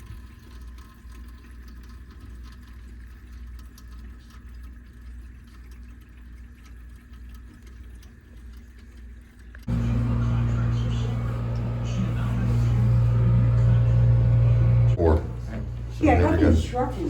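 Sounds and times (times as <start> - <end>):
low hum: 9.7 - 17.0.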